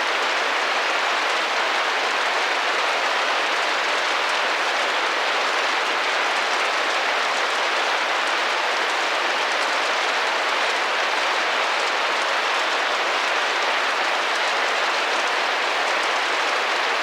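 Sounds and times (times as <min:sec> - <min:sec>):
rain against a window pane: 0:00.0 - 0:17.0.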